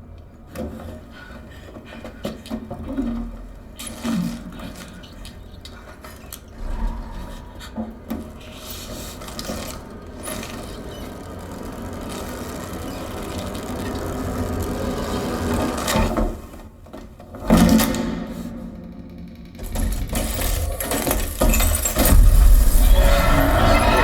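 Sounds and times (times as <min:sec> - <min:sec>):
deep bass rumble: 0:06.6 - 0:08.4
heavy hits: 0:06.6 - 0:08.6, 0:21.3 - 0:24.0.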